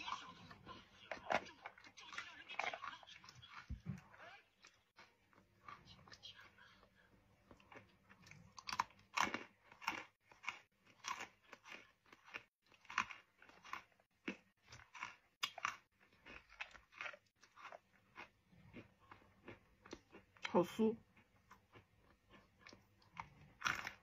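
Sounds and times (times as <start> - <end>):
person crunching fried dough: 7.5 - 24.0.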